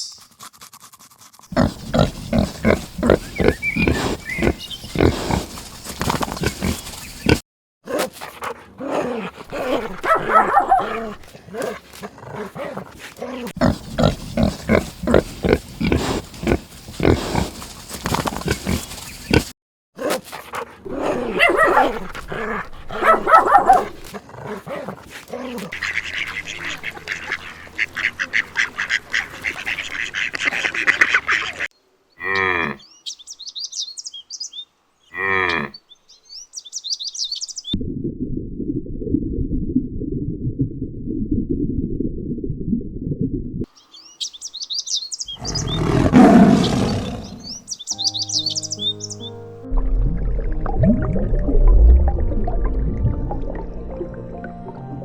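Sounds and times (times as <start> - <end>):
high chirping: 0.0 - 0.3, 43.8 - 45.9, 47.2 - 49.5
rapid animal calls: 1.5 - 32.8, 44.1 - 49.3.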